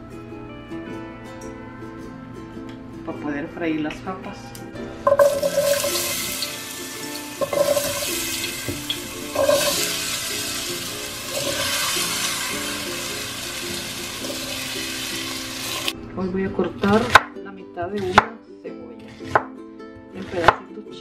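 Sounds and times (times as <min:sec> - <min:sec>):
potatoes sizzling in hot oil: 0:05.1 - 0:15.9.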